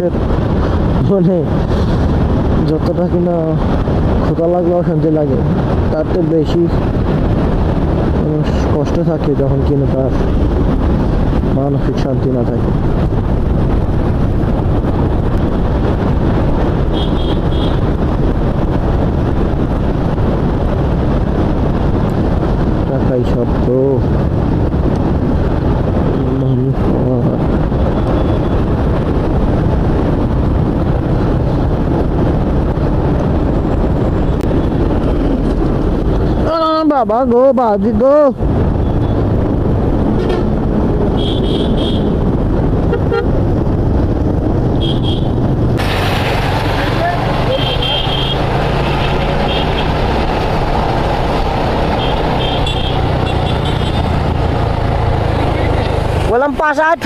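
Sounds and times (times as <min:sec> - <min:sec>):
wind rush on microphone: 0:00.0 - 0:57.0
motorcycle engine cruising: 0:38.5 - 0:56.6.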